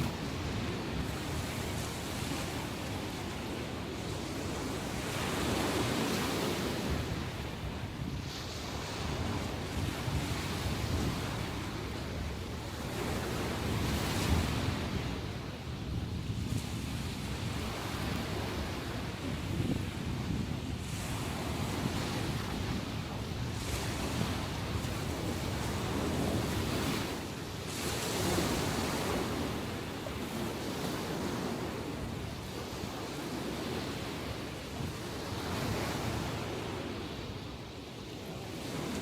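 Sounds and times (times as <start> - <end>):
sea waves breaking on shore: 0.0 - 39.0
wind on microphone: 0.0 - 39.0.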